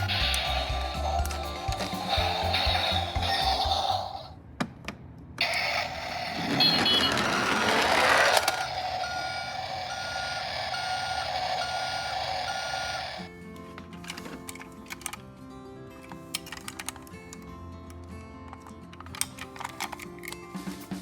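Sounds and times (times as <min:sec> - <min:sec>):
truck reversing beeper: 0:05.4 - 0:13.3.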